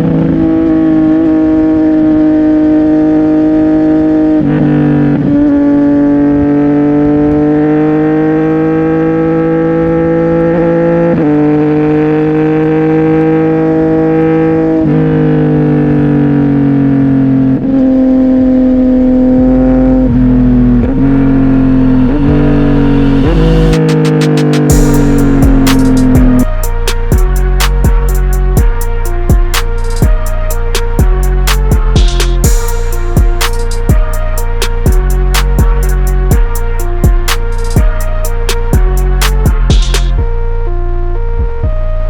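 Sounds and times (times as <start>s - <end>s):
motorcycle engine while riding: 0.0s - 26.6s.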